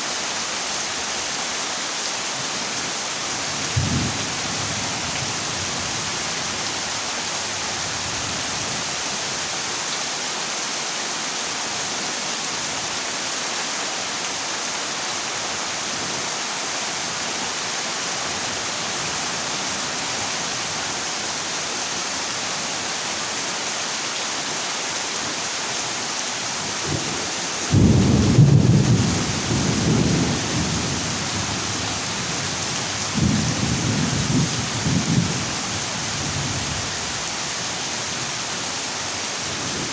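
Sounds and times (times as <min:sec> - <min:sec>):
heavy rain on a metal roof: 0:00.0 - 0:39.9
thunder rumbling: 0:27.7 - 0:32.4.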